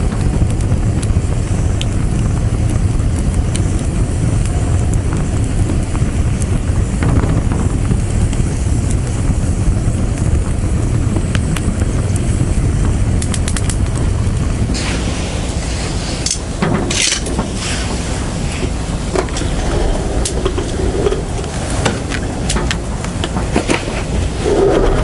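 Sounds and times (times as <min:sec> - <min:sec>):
bonfire crackling: 0:00.0 - 0:25.0
hissing rustling noise: 0:11.1 - 0:25.0.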